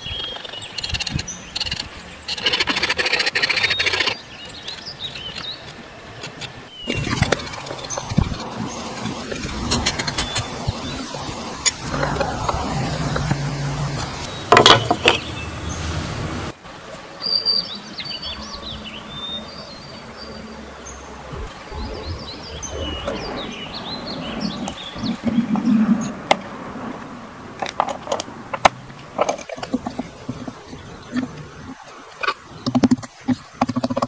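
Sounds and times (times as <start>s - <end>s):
small birds chirping: 0.0s - 16.5s, 17.2s - 26.9s
steady low hum: 20.2s - 27.5s.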